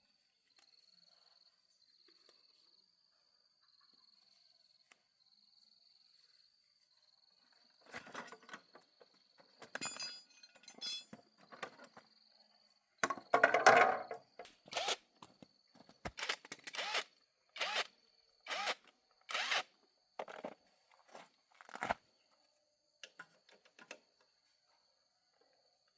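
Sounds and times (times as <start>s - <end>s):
tools knocking and scraping: 7.9s - 8.9s, 9.6s - 12.0s, 13.0s - 14.2s
cricket trilling: 11.4s - 20.3s.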